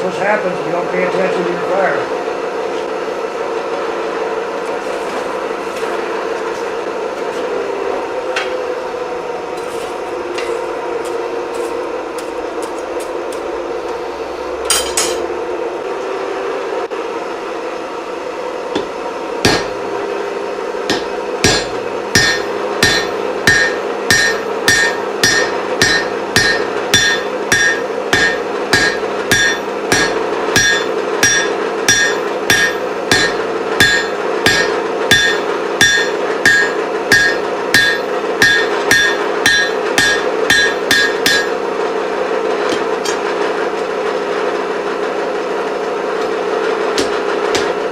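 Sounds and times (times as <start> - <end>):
steady hum: 0.0 - 43.8, 45.7 - 47.9
hammer ringing on anvil: 14.7 - 15.3, 18.8 - 19.8, 20.9 - 41.6, 47.0 - 47.8.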